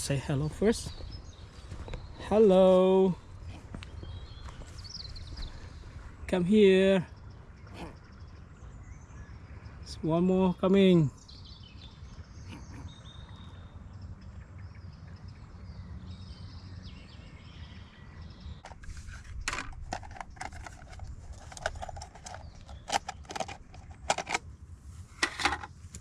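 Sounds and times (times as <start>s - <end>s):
faint bird chirps: 10.8s - 18.7s
sharp clicks and knocks: 18.7s - 24.4s.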